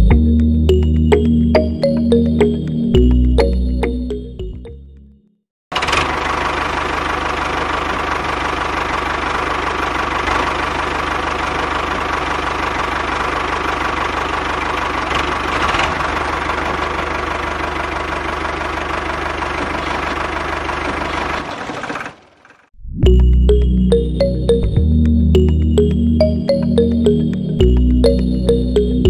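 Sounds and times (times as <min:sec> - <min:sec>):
toy tractor engine running: 0:05.7 - 0:22.7.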